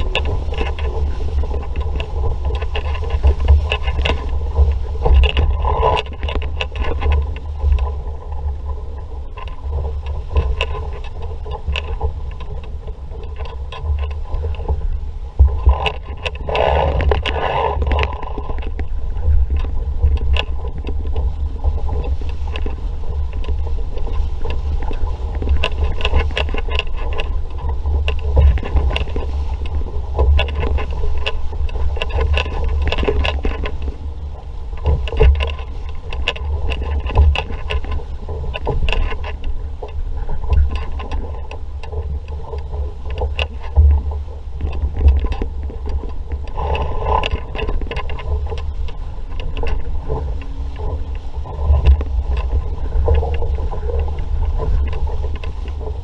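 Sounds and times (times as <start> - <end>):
water splashing against hull: 0.0 - 56.0
wind buffeting microphone: 0.0 - 56.0.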